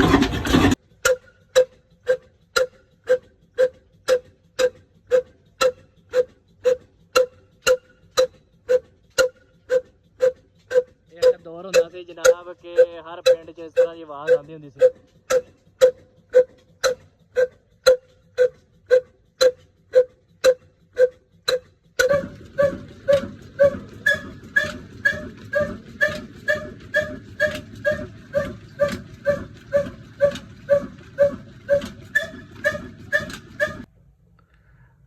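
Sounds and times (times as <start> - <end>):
diesel engine running: 0.0 - 0.8, 22.0 - 33.9.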